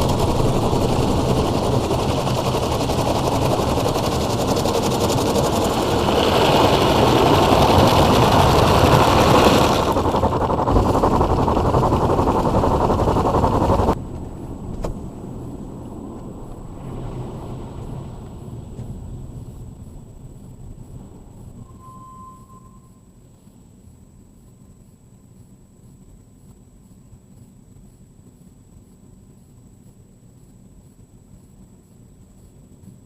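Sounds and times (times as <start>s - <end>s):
car wash machinery rushing: 0.0s - 21.6s.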